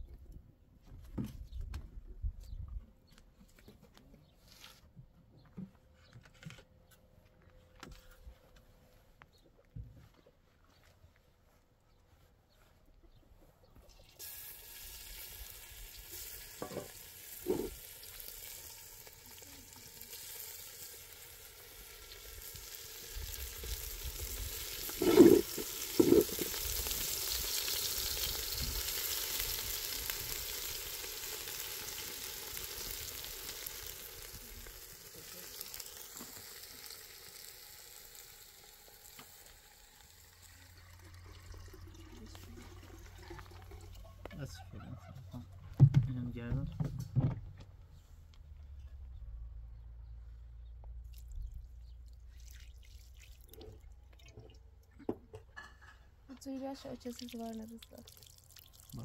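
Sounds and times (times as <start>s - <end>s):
food sizzling in a pan: 14.2s - 40.9s.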